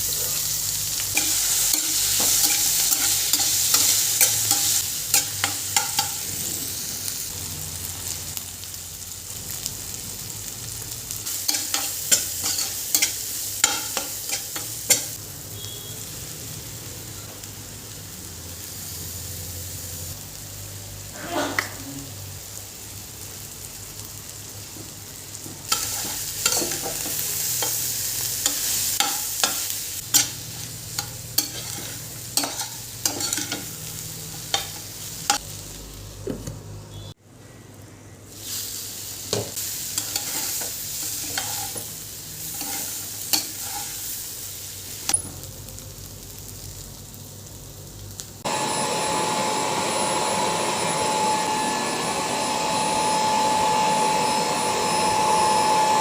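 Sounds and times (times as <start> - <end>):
food sizzling in a pan: 0.0 - 36.3, 38.3 - 56.0
spatula scraping a pan: 1.2 - 6.3, 11.5 - 15.2, 25.7 - 35.4, 39.9 - 44.1
small motor appliance whining: 48.5 - 56.0.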